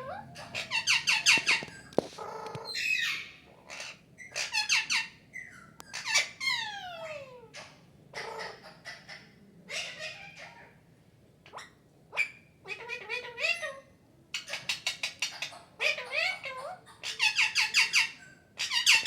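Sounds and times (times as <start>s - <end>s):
parrot squawking and chirping: 0.0s - 10.5s.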